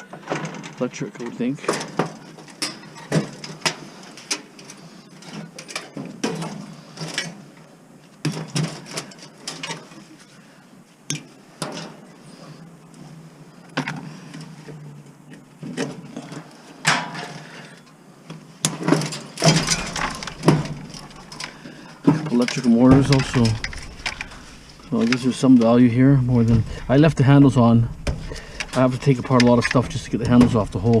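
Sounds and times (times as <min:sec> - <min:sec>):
sheet metal clanking and rattling: 0:18.9 - 0:31.0.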